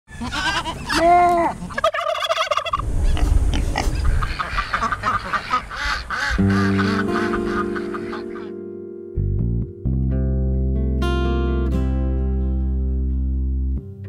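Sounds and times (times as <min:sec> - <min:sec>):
turkey gobbling: 0:00.1 - 0:08.5
fowl honking and clucking: 0:00.1 - 0:08.6
music: 0:06.2 - 0:14.0.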